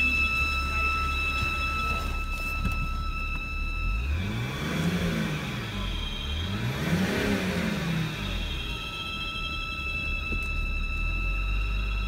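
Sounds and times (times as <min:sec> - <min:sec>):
steady high-pitched squeal: 0:00.0 - 0:06.5, 0:08.1 - 0:12.0
car engine revving: 0:00.0 - 0:09.0.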